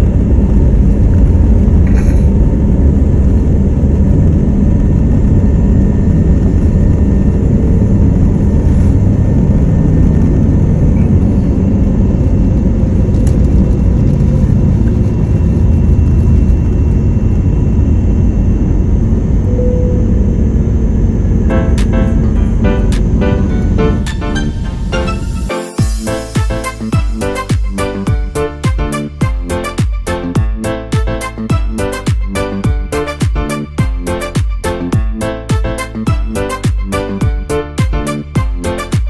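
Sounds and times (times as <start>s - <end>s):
airliner cabin rumble: 0.0s - 27.2s.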